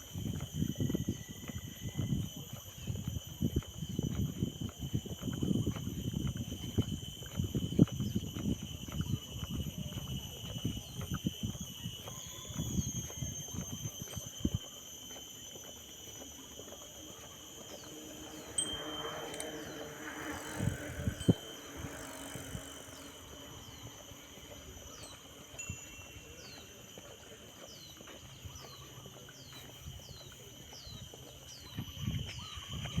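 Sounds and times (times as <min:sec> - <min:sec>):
crickets and insects: 0:00.0 - 0:33.0.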